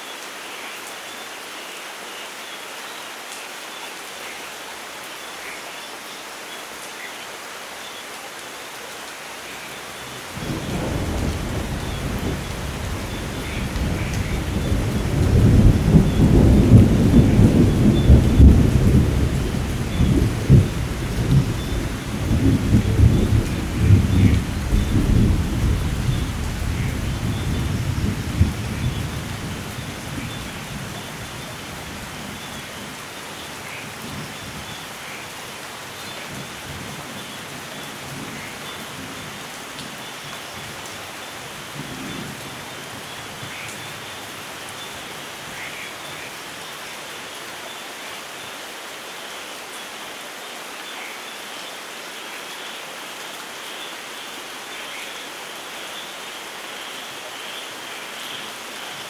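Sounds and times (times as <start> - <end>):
heavy rain falling: 0.0 - 59.0
low roll of thunder: 10.3 - 31.0.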